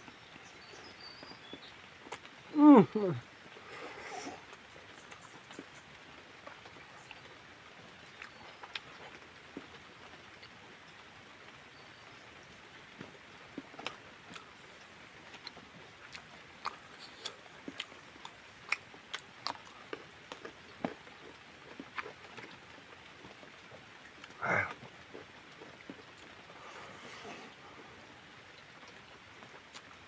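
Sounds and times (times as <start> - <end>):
faint hiss: 0.0 - 8.1.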